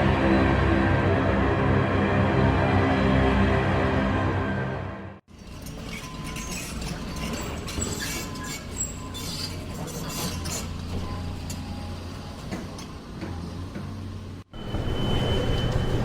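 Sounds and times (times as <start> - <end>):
low hum of traffic: 5.2 - 16.0.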